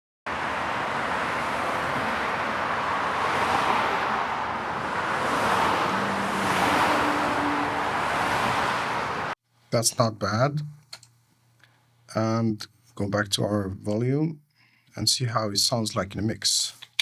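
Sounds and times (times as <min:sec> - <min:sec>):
cars passing on road: 0:00.3 - 0:09.4.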